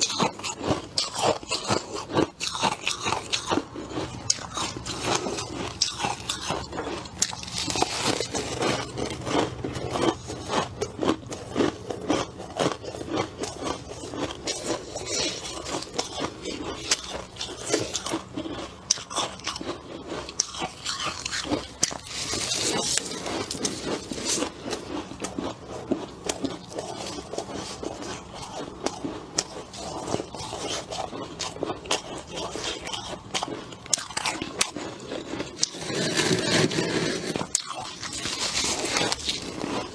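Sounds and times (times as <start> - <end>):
chewing ice crunches: 0.0 - 39.9.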